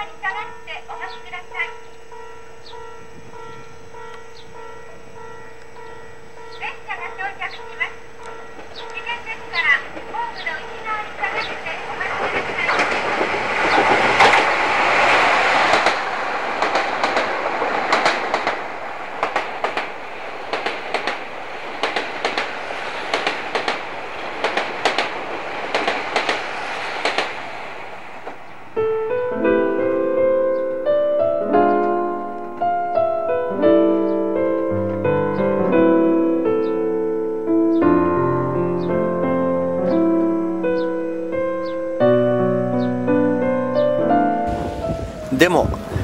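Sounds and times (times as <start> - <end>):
soft piano music: 0.0 - 11.6, 28.4 - 46.0
diesel train passing at speed: 2.4 - 29.3
wheels clacking over rail joints: 9.6 - 27.6.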